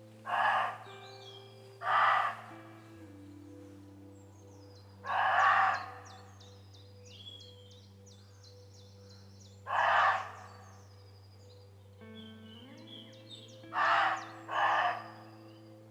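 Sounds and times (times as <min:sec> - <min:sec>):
faint birds chirping: 0:00.0 - 0:15.9
deer barking: 0:00.2 - 0:00.9, 0:01.8 - 0:02.7, 0:05.0 - 0:06.3, 0:09.6 - 0:10.8, 0:13.7 - 0:15.3.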